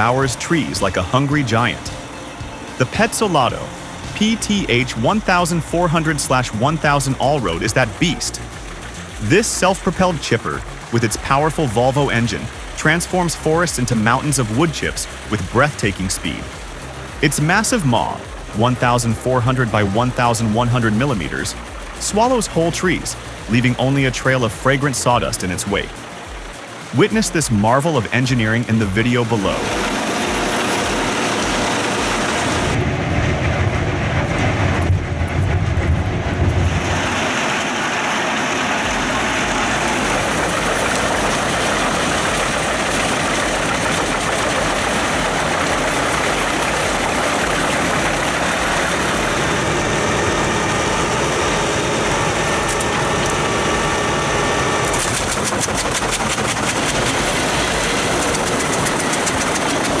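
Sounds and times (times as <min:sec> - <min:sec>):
heavy low rumble: 0:00.0 - 0:27.8, 0:28.4 - 1:00.0
wood chipper running: 0:28.8 - 1:00.0.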